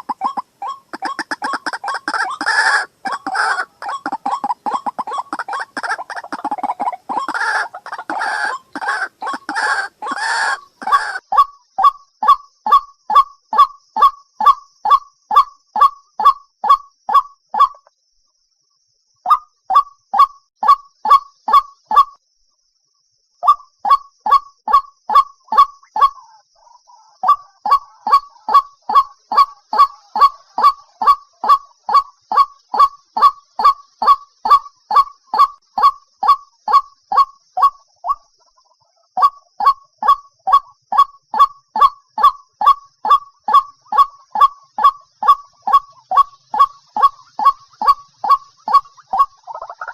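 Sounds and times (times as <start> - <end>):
waterhen short sharp calls: 0.0 - 13.2, 26.9 - 38.3, 39.2 - 49.9.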